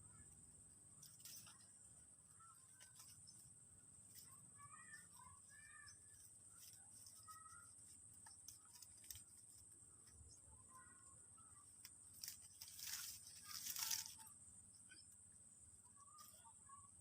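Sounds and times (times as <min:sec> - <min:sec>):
faint bird chirps: 0:00.0 - 0:17.0
leaves rustling: 0:01.0 - 0:01.8, 0:04.0 - 0:09.8, 0:11.8 - 0:14.4
high-pitched insect buzz: 0:12.1 - 0:15.2.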